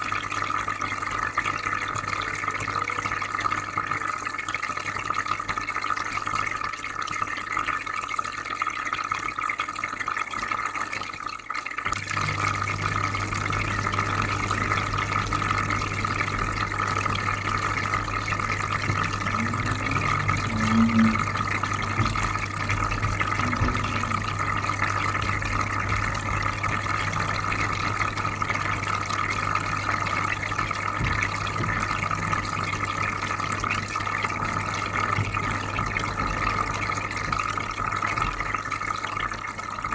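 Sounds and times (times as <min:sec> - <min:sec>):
aquarium filter bubbling water: 0:00.0 - 0:39.9
low steady hum: 0:11.9 - 0:37.1.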